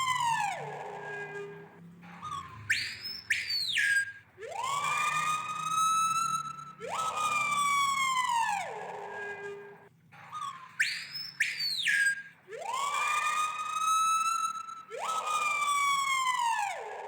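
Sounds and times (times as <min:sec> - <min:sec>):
bird whistling siren-like wails: 0:00.0 - 0:17.0
short high bird whistles: 0:10.3 - 0:12.2.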